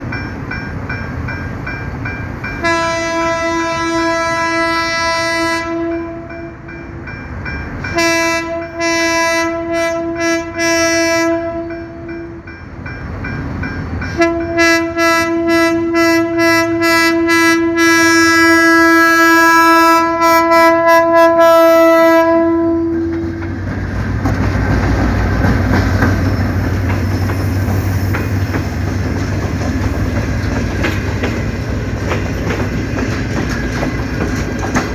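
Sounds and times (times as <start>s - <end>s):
train wheels clattering on rails: 0.0s - 15.5s, 21.8s - 34.9s
locomotive horn blasts: 2.6s - 6.6s, 7.9s - 12.4s, 14.1s - 23.4s.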